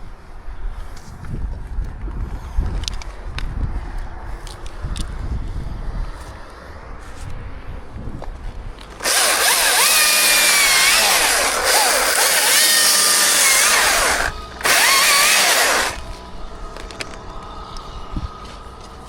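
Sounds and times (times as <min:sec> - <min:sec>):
chainsaw cutting wood: 0:08.9 - 0:16.0.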